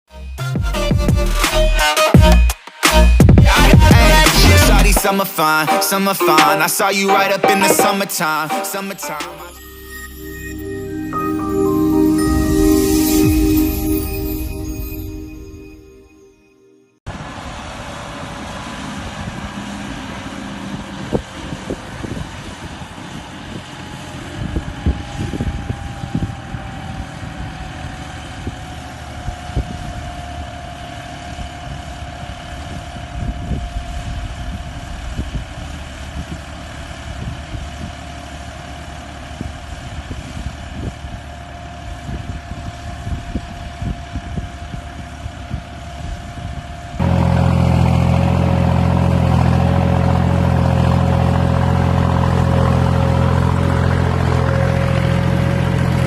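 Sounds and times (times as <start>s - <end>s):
high whine: 2.9s - 17.3s
tractor diesel engine running: 17.1s - 56.0s.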